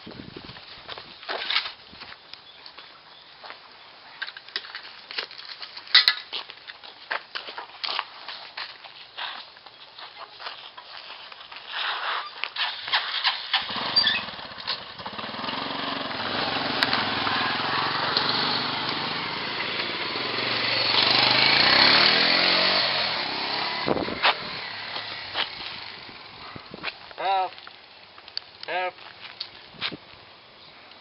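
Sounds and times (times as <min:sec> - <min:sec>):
motorcycle engine revving: 0:13.1 - 0:26.8.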